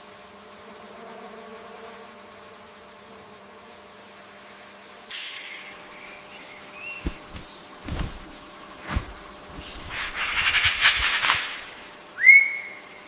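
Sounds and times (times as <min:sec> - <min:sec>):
buzzy rattling sound: 0:07.0 - 0:12.0
bird whistled note: 0:12.2 - 0:12.9.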